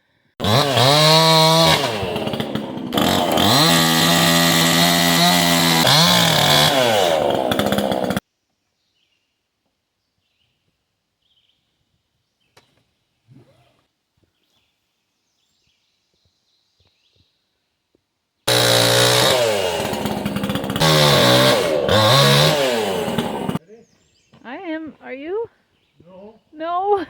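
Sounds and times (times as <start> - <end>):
chainsaw revving: 0.4 - 8.2, 18.5 - 23.6.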